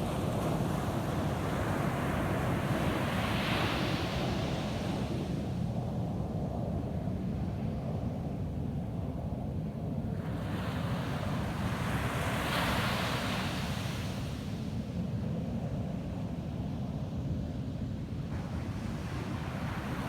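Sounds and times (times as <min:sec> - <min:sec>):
waves breaking on a beach: 0:18.3 - 0:20.0.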